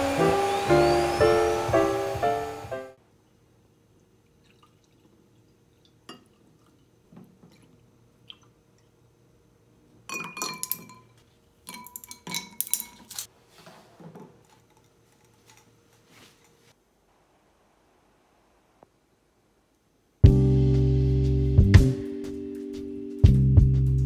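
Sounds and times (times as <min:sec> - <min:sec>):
liquid pouring: 0:04.3 - 0:08.9
glass clinking: 0:10.1 - 0:13.3.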